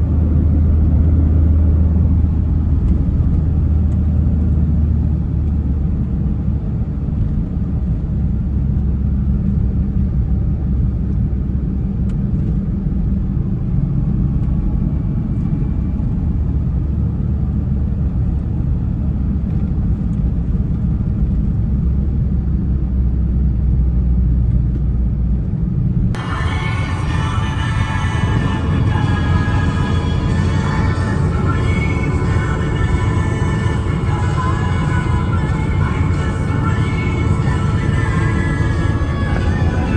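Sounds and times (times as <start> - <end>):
pickup engine droning: 0.0 - 39.9
music: 26.2 - 39.9.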